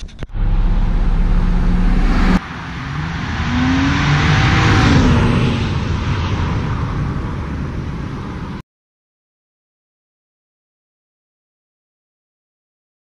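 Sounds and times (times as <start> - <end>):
car engine idling: 0.0 - 4.7
car driving past: 0.3 - 7.2.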